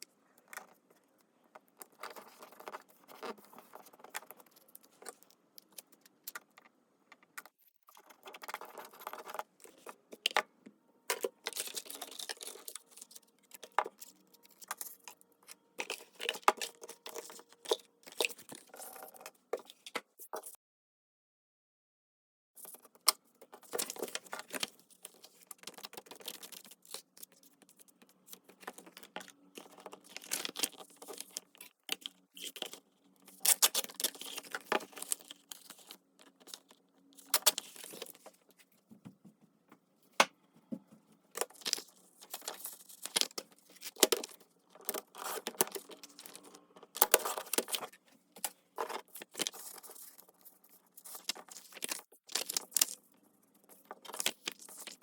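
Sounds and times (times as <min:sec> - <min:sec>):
paper rustling and crinkling: 0:11.1 - 0:18.9, 0:23.6 - 0:39.0, 0:40.7 - 0:53.0, 0:53.6 - 0:55.0.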